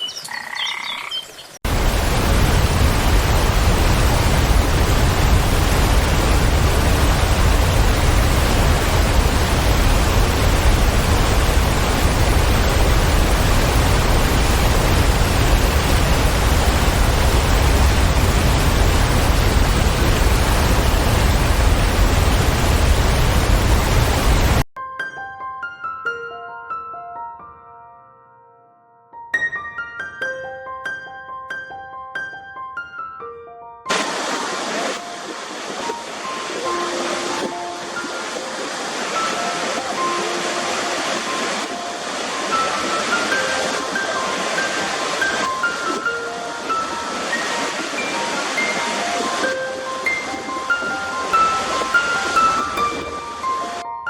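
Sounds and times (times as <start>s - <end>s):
birds chirping: 0.0s - 1.6s
waterfall rushing: 1.6s - 24.6s, 33.9s - 53.8s.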